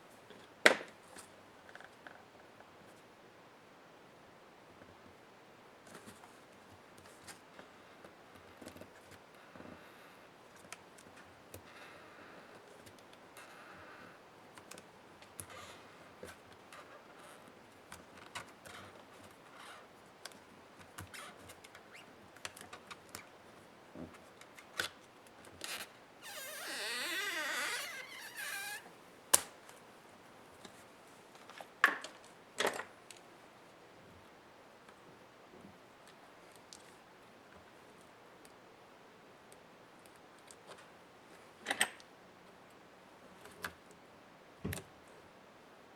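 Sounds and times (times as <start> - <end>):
wavering squeak: 26.2 - 28.9.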